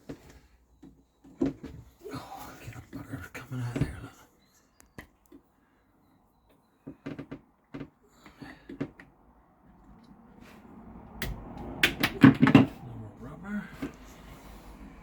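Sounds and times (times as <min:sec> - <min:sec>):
knocks and clicks of plumbing pipes: 0:11.1 - 0:12.8.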